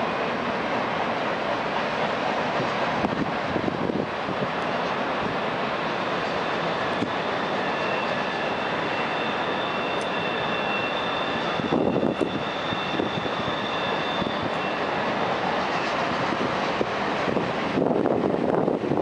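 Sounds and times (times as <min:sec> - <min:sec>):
train passing close by: 0:00.0 - 0:19.0
high wheel squealing: 0:04.8 - 0:17.7.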